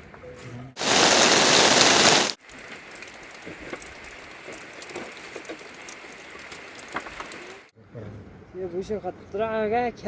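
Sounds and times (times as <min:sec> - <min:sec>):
heavy rain: 0:00.8 - 0:02.4
loud rush of rain: 0:00.8 - 0:02.4.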